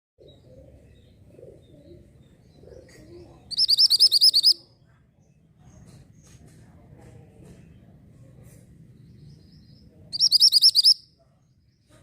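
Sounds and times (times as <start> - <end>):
bird high rapid trill: 3.5 - 4.6, 10.2 - 11.0.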